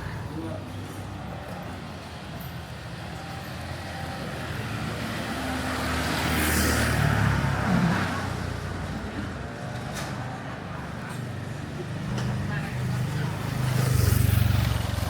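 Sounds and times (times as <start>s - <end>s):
vehicle engine passing by: 4.8s - 9.0s, 12.4s - 15.0s.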